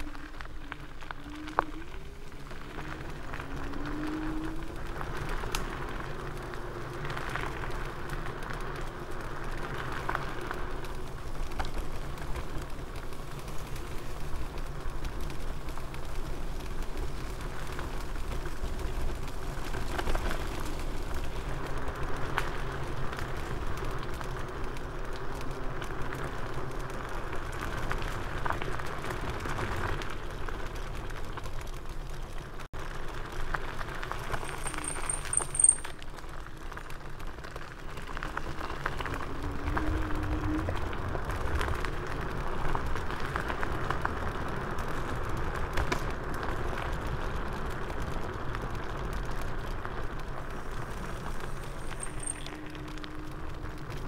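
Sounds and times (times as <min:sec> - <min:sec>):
scooter rattling: 0:00.0 - 0:54.0
tyre and ground noise: 0:00.0 - 0:54.0.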